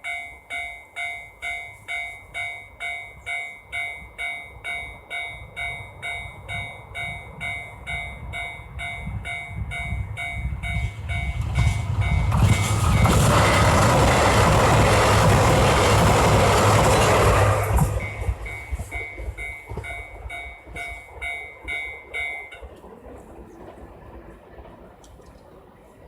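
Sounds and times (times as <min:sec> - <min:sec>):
level-crossing warning bell ringing: 0:00.0 - 0:22.8
train rumble and rush: 0:00.0 - 0:26.0.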